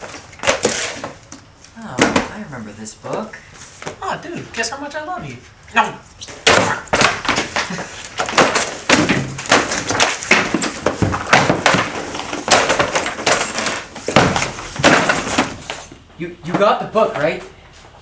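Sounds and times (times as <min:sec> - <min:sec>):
scuffle thumps and crashes: 0:06.3 - 0:16.7.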